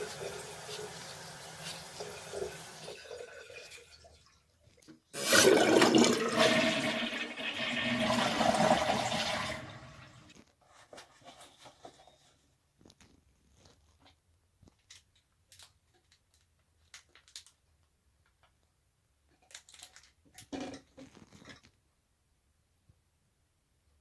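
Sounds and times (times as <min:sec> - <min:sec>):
toilet flushing: 0:00.0 - 0:04.4, 0:05.2 - 0:10.3.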